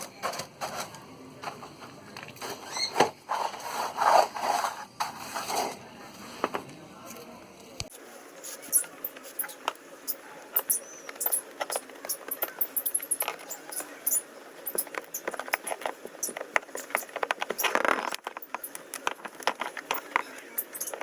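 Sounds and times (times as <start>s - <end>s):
rustling scrape: 3.3s - 5.8s, 8.0s - 21.0s
tools and car parts clicking: 8.5s - 21.0s.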